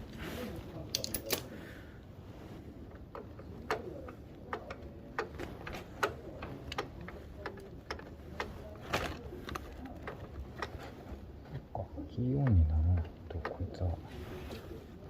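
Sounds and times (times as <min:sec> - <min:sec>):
hand tools clicking and tapping: 0:00.9 - 0:01.4.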